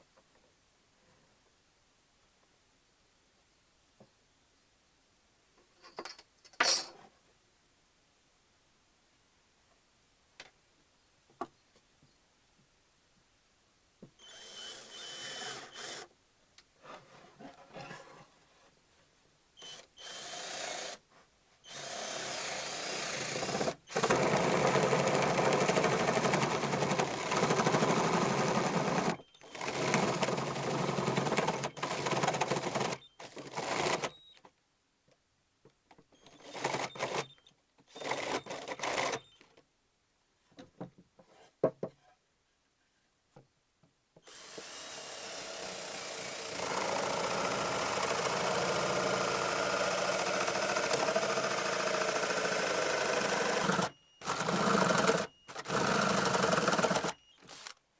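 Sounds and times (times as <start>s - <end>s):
power drill drilling wood: 14.2s - 16.1s, 19.6s - 21.0s, 21.7s - 34.1s, 44.2s - 57.7s.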